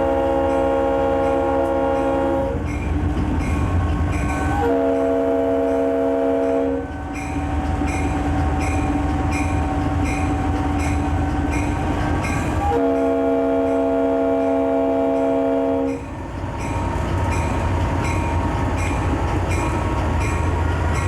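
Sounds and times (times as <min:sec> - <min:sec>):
locomotive air horn: 0:00.0 - 0:02.7, 0:04.3 - 0:07.6, 0:12.6 - 0:17.0
locomotive bell ringing: 0:00.0 - 0:21.0
train rumble: 0:00.0 - 0:21.0.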